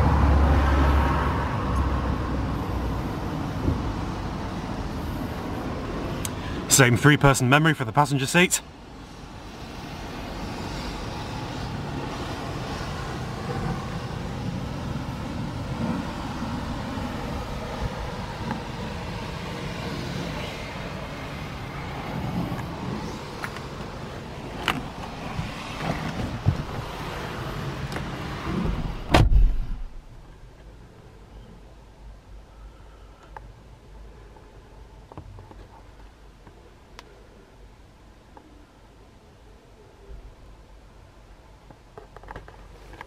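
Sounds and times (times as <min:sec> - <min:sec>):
vehicle engine humming: 0:00.0 - 0:36.4
car door shutting: 0:27.9 - 0:30.1.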